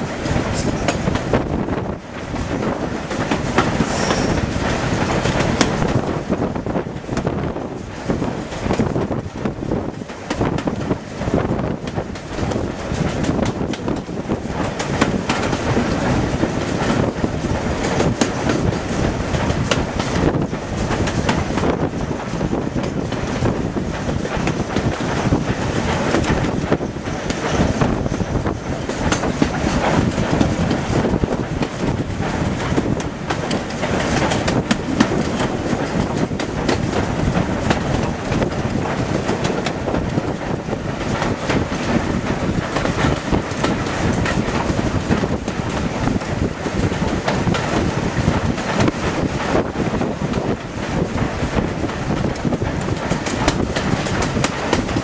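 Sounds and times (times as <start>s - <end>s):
steam train wheels rushing: 0.0s - 55.0s
wheels clattering over rail joints: 0.0s - 55.0s.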